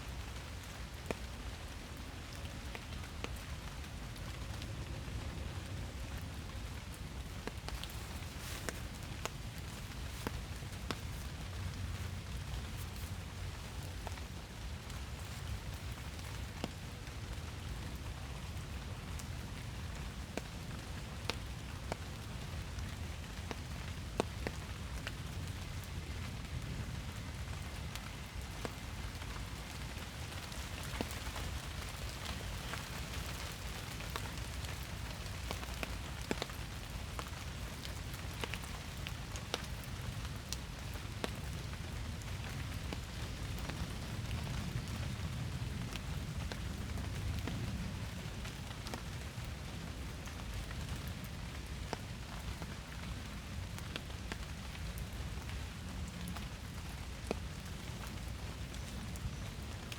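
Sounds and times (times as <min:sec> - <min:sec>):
raindrops ticking: 0:00.1 - 0:59.9.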